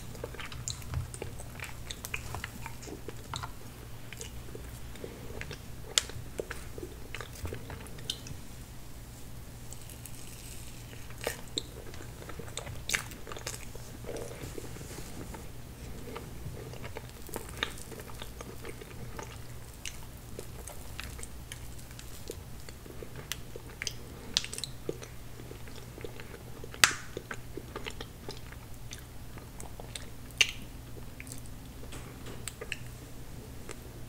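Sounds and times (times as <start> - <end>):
faint low hum: 0.0 - 34.0
wet mouth clicks and smacks: 29.8 - 31.5.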